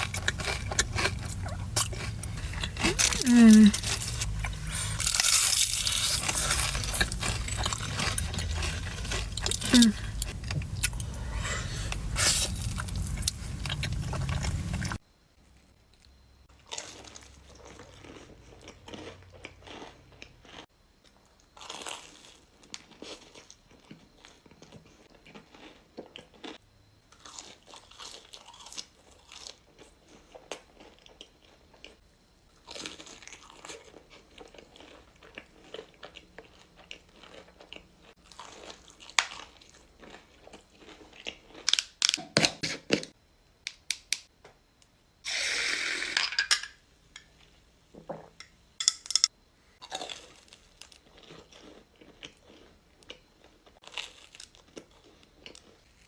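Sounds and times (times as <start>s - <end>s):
crunchy bites and chewing: 0.0s - 15.0s, 16.6s - 42.6s, 49.3s - 56.0s
sharp crackles: 0.0s - 15.0s.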